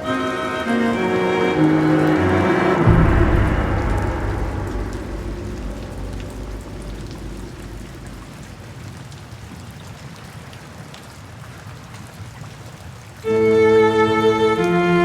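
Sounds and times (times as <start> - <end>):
background music: 0.0 - 8.6, 13.3 - 15.0
steady rain: 0.0 - 15.0.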